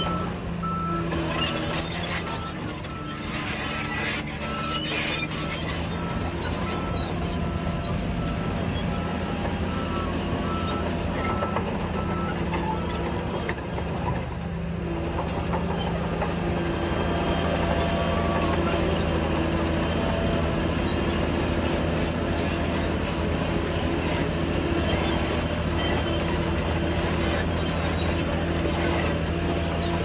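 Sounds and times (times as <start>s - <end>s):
bulldozer diesel engine running: 0.0s - 30.0s.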